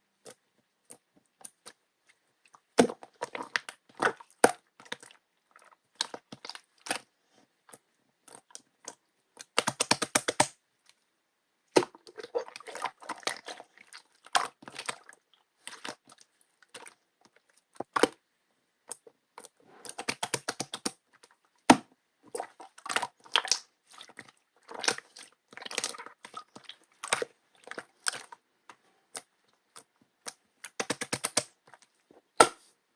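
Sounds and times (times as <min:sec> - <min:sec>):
rapid popping of slime: 0:09.4 - 0:10.6, 0:19.9 - 0:21.0, 0:30.3 - 0:31.6.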